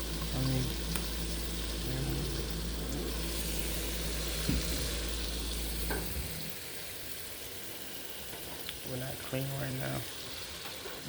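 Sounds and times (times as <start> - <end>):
steady low hum: 0.0 - 7.2
food sizzling in a frying pan: 0.0 - 11.0.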